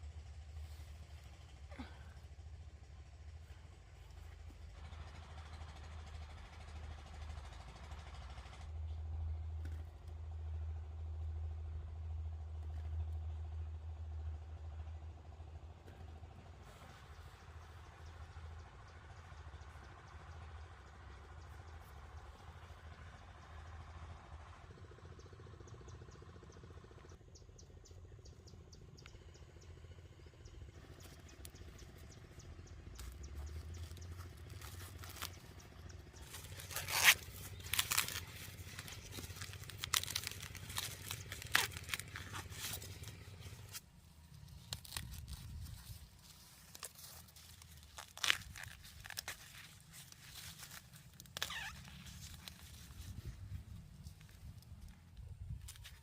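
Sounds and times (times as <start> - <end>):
plant material rustling and crunching: 30.8 - 56.0.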